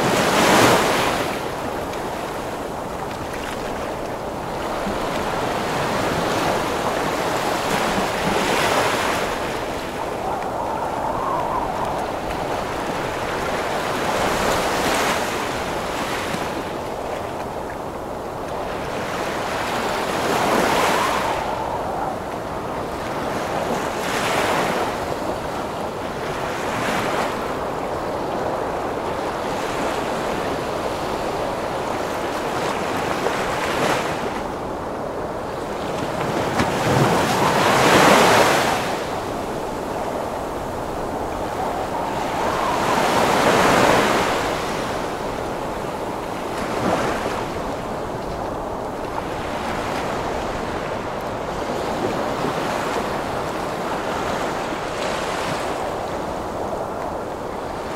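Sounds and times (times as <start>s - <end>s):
ocean waves breaking: 0.0s - 57.9s
storm wind: 0.0s - 57.9s.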